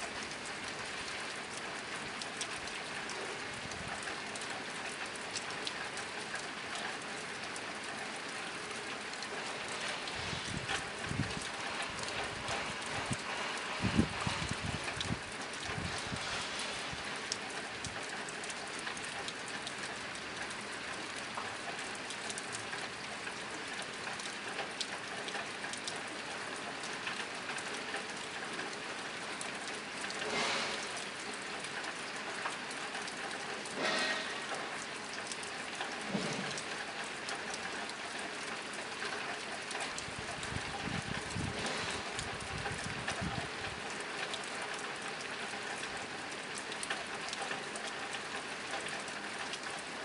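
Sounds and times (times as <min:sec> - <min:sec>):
rain pattering on a tin roof: 0:00.0 - 0:50.0.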